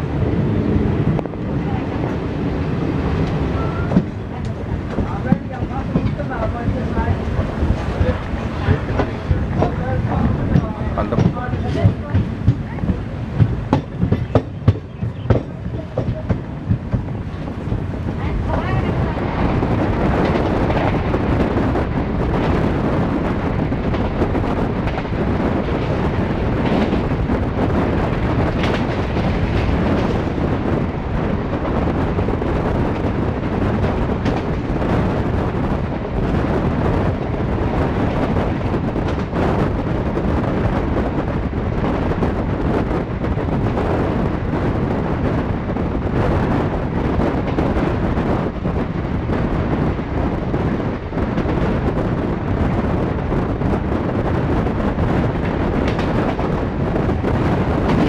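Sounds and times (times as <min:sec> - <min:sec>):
train wheels rumbling on rails: 0:00.0 - 0:58.0
wind buffeting microphone: 0:00.0 - 0:58.0.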